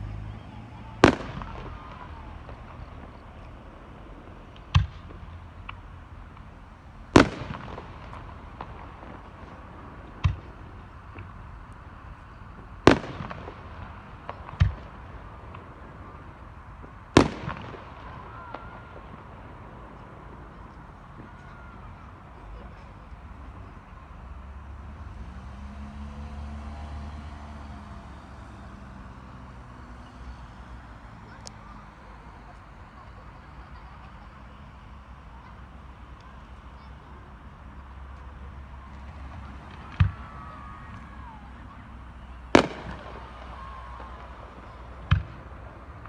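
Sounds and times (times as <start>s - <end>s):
firework crackles: 0.0s - 46.0s
vehicle engine rumbling: 0.0s - 46.0s
firework shells bursting: 0.9s - 24.7s, 38.8s - 46.0s.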